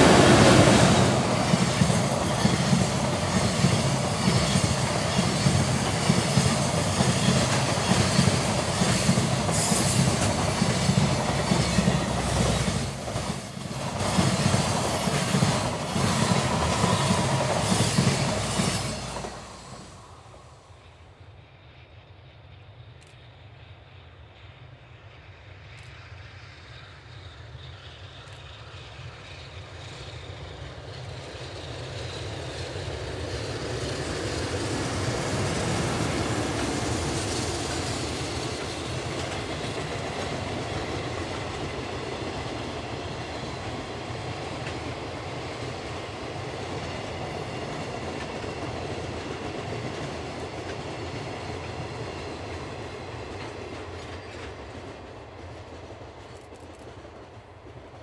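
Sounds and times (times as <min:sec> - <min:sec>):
electric locomotive motors whining: 0:00.0 - 0:20.4.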